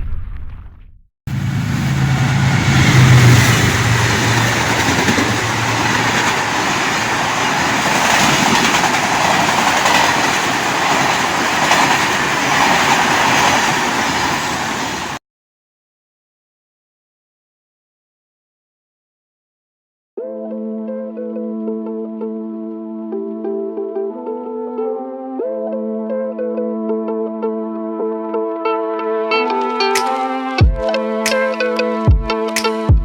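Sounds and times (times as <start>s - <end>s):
train rumble and rail noise: 1.3s - 15.2s.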